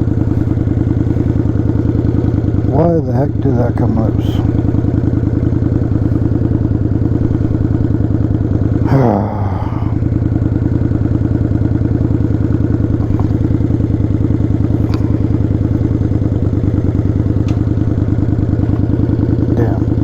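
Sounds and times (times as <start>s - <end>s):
motorcycle engine idling: 0.0s - 20.0s
short falling groan: 8.7s - 10.3s.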